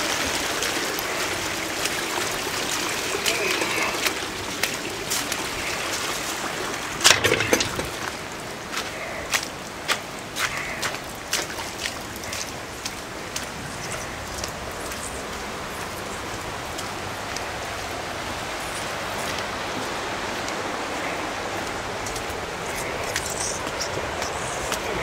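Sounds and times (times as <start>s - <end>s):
heavy rain hissing: 0.0s - 25.0s.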